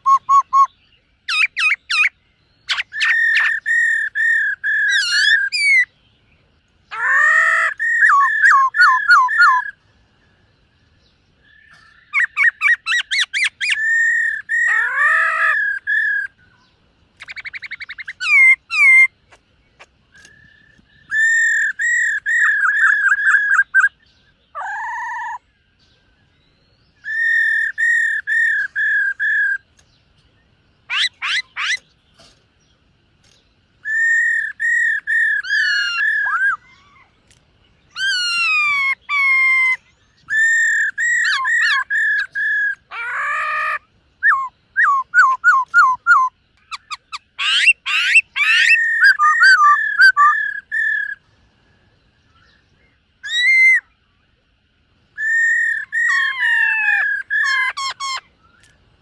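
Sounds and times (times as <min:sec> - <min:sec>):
bird singing whistled phrases: 0:00.0 - 0:05.9, 0:06.9 - 0:09.8, 0:11.4 - 0:19.2, 0:20.1 - 0:25.6, 0:26.4 - 0:29.7, 0:33.8 - 0:37.1, 0:37.9 - 0:51.2, 0:53.2 - 0:54.0, 0:55.2 - 0:58.8.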